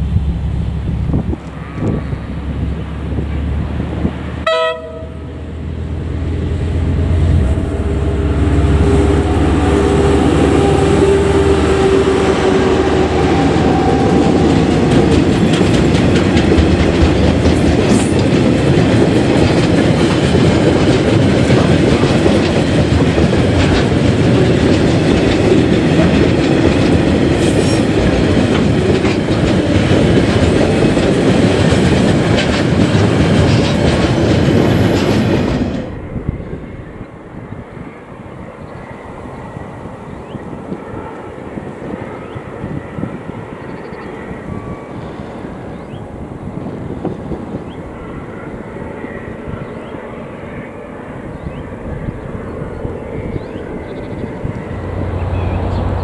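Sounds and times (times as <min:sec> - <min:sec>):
diesel locomotive engine drone: 0:00.0 - 0:56.0
train horn: 0:01.4 - 0:02.7, 0:04.4 - 0:05.6, 0:06.8 - 0:15.2
wheels clacking over rail joints: 0:07.7 - 0:36.0.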